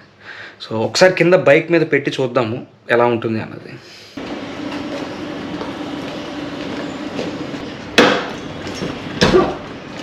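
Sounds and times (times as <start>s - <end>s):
steady low hum: 4.2s - 10.0s.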